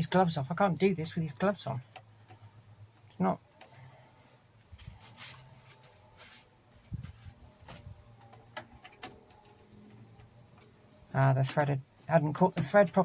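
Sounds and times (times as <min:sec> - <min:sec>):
small metal parts clicking: 0:08.2 - 0:11.8.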